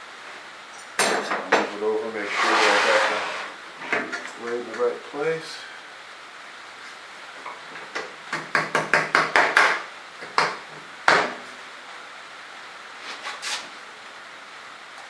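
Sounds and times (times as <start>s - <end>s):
wood and metal knocks: 7.9s - 11.4s.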